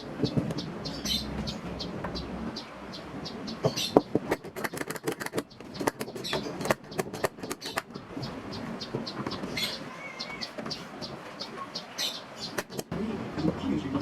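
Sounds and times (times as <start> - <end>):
sharp knocks and clicks: 3.6 - 9.6, 12.5 - 12.9.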